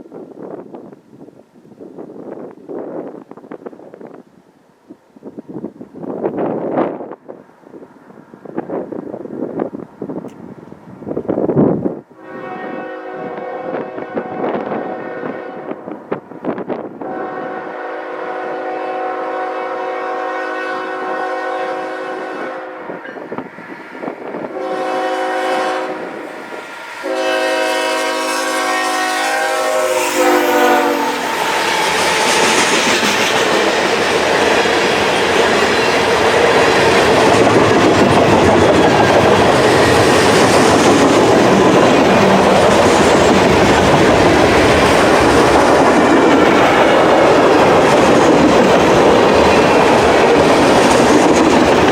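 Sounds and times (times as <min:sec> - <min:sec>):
train rumbling and clattering by: 0:00.0 - 0:51.9
locomotive air horn: 0:12.2 - 0:16.0, 0:17.0 - 0:23.2, 0:24.5 - 0:32.7.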